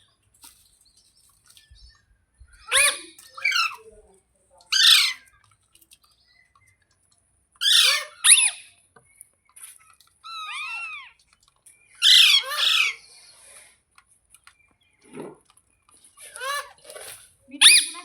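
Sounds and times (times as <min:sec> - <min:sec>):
parrot chirping: 0:02.5 - 0:03.8, 0:04.7 - 0:05.4, 0:07.6 - 0:08.8, 0:10.2 - 0:11.2, 0:12.0 - 0:13.1, 0:17.6 - 0:18.0
parrot screeching: 0:02.6 - 0:03.8, 0:04.7 - 0:05.3, 0:07.6 - 0:08.7, 0:10.2 - 0:11.2, 0:12.0 - 0:13.0, 0:16.3 - 0:16.8, 0:17.6 - 0:18.0.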